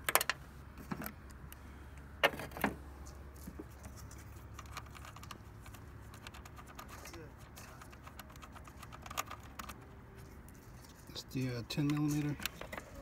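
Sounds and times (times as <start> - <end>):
tools and plastic parts clicking: 4.4 - 9.8.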